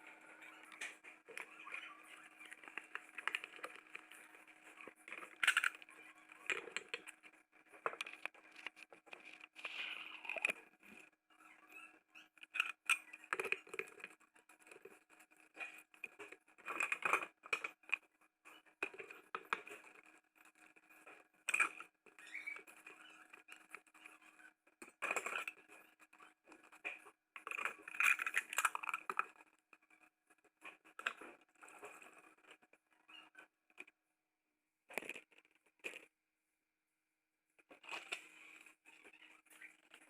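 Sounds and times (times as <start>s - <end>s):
objects being handled: 0.0s - 11.2s.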